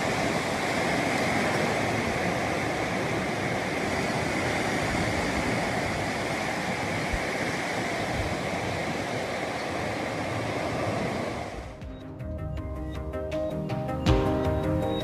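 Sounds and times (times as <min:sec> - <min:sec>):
surf washing onto beach: 0:00.0 - 0:11.8.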